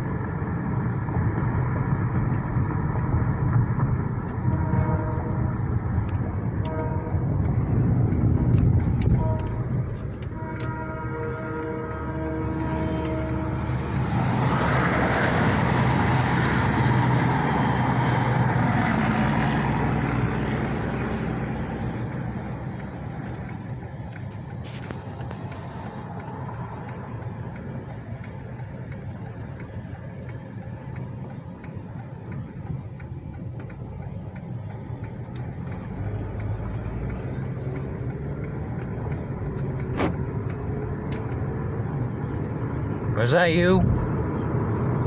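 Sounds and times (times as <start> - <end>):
low engine hum: 0.0 - 45.0
vehicle passing by: 11.5 - 22.4.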